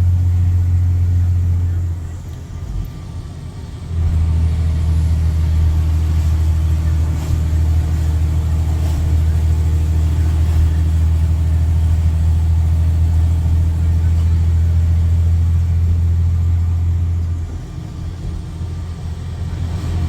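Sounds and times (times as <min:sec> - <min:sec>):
diesel engine deep drone: 0:00.0 - 0:20.0.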